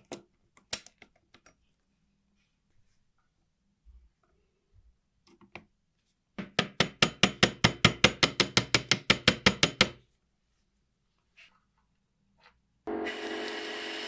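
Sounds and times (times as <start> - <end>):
hammer tapping on metal: 6.4 - 10.0.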